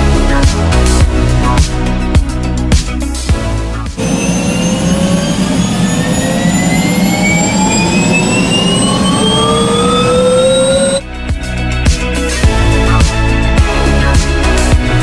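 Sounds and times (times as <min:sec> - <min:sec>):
helicopter engine and rotor: 0:04.0 - 0:11.0
high whines climbing in pitch: 0:04.0 - 0:11.0.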